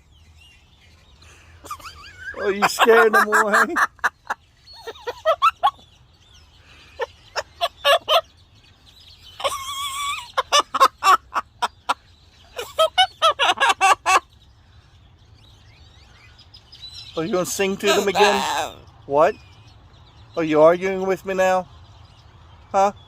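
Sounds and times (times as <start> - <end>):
parrot chattering: 17.3 - 18.8.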